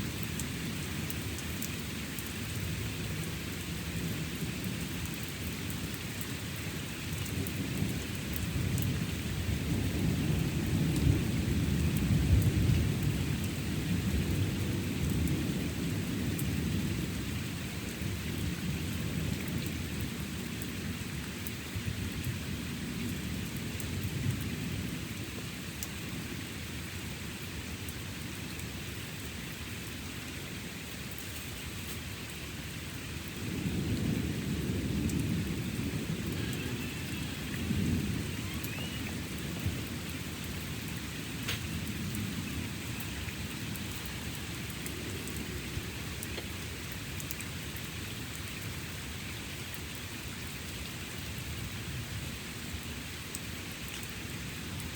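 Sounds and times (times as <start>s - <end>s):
steady rain: 0.0s - 54.9s
rolling thunder: 33.4s - 40.8s.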